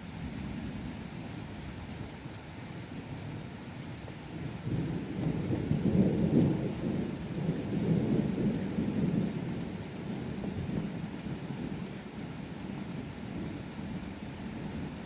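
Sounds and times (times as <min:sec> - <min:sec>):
steady rain: 0:00.0 - 0:15.0
thunder rumbling: 0:04.7 - 0:11.8.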